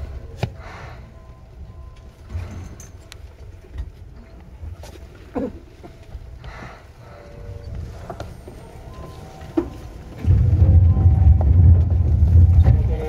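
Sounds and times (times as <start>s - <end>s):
electric train rumble: 6.5s - 13.0s.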